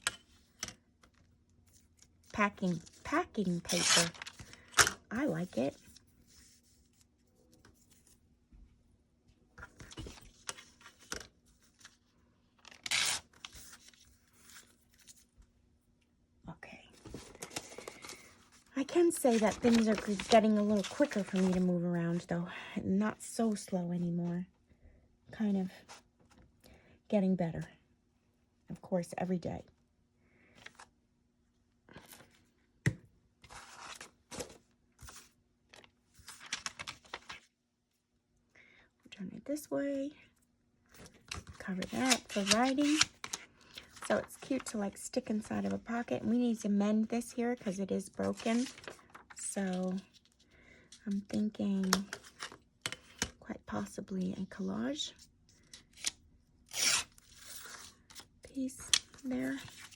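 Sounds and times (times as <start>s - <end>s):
paper rustling and crinkling: 17.0s - 21.7s, 33.4s - 37.5s, 41.0s - 44.8s, 48.0s - 50.4s, 56.8s - 59.9s
packing paper rustling and tearing: 18.9s - 21.6s, 36.2s - 37.4s, 48.2s - 49.4s.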